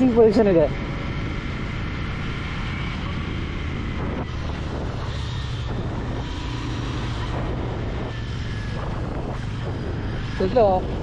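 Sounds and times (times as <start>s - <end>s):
motorcycle engine running: 0.0s - 11.0s
wind and road rush: 0.0s - 11.0s.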